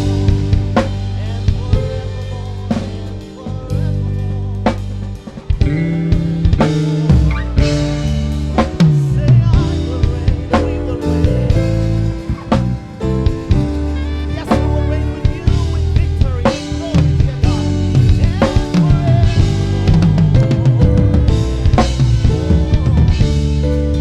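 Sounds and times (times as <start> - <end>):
band playing: 0.0 - 24.0
drum kit: 0.0 - 24.0
sliding bass note: 0.0 - 24.0.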